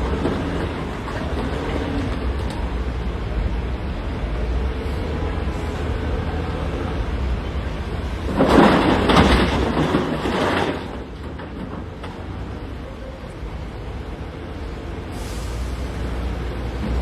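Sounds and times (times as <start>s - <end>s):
diesel machinery rumbling: 0.0s - 17.0s
rocks crashing into truck bed: 8.2s - 12.4s.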